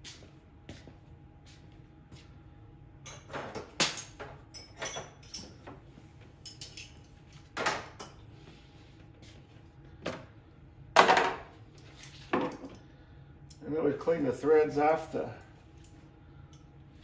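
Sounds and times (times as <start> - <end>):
hand tools clinking and knocking: 3.2 - 5.7.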